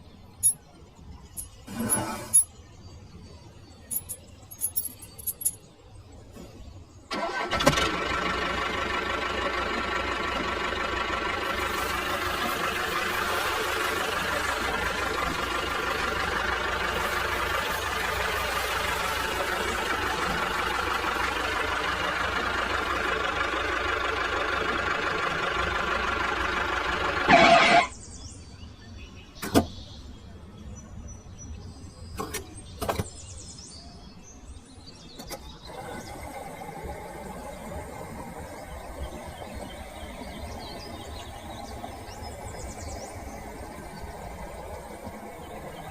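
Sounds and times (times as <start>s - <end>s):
motor running steadily: 8.4s - 27.8s.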